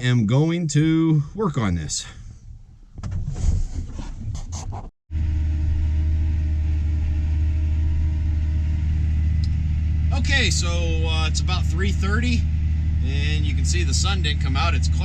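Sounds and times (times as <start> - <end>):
tractor engine low drone: 5.1 - 15.0.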